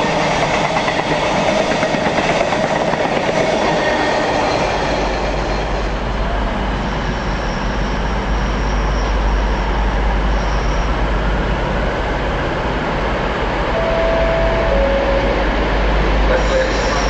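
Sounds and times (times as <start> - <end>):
train engine and wheels rumbling: 0.0 - 17.0
held tone: 13.7 - 15.6.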